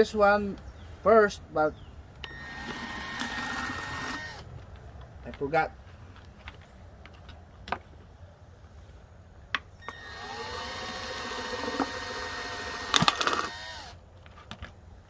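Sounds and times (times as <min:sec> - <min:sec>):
electric drill whining through plastic: 0:02.2 - 0:04.5, 0:09.8 - 0:14.0.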